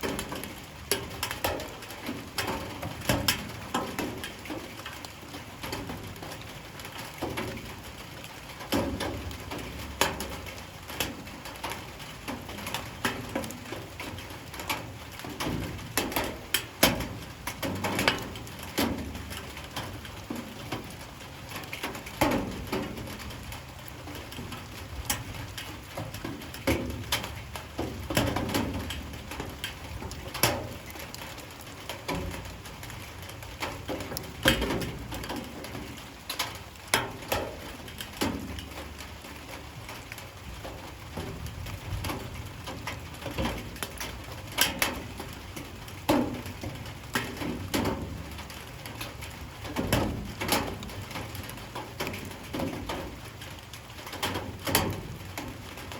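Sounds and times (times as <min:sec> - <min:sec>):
light rain patter: 0:00.0 - 0:55.9
water drops knocking on hard surfaces: 0:33.6 - 0:38.8.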